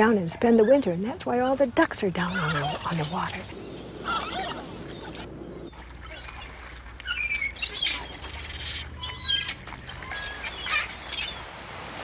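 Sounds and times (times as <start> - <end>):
birds chirping and whistling: 2.2 - 11.4.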